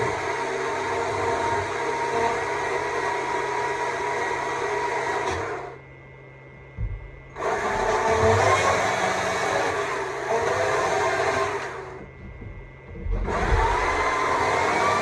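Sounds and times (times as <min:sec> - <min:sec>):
electric chainsaw cutting wood: 0:00.0 - 0:05.8, 0:07.4 - 0:12.0, 0:13.1 - 0:15.0
low thump: 0:06.8 - 0:07.1.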